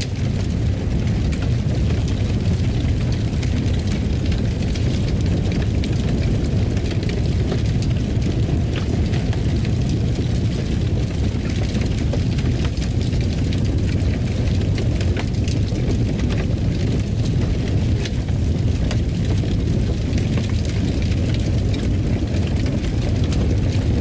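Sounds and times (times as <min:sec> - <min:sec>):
fireplace fire crackling: 0:00.0 - 0:24.0.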